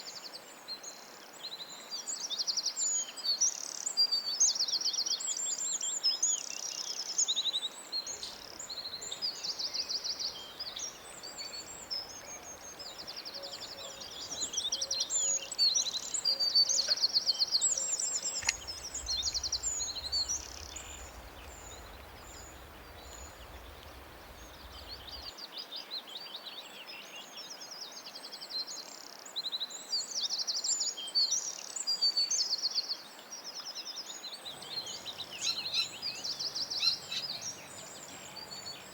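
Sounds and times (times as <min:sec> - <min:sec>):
faint background hiss: 0:00.0 - 0:38.9
birds chirping and singing: 0:08.0 - 0:25.3, 0:34.4 - 0:38.9.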